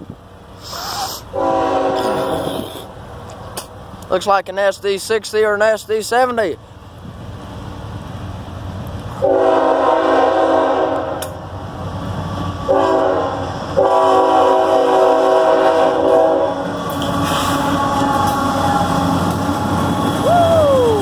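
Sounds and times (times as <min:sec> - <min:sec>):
train rumbling: 0:00.0 - 0:21.0
locomotive air horn blasts: 0:01.3 - 0:02.7, 0:09.2 - 0:11.4, 0:12.7 - 0:19.2.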